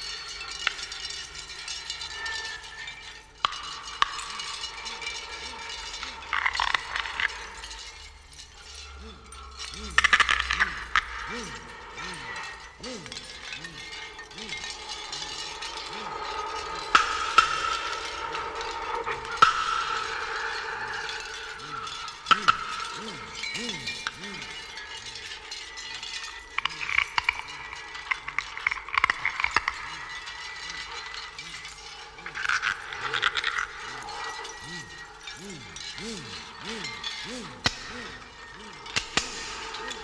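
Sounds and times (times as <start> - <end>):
sustained ringing tones: 0.0 - 40.0.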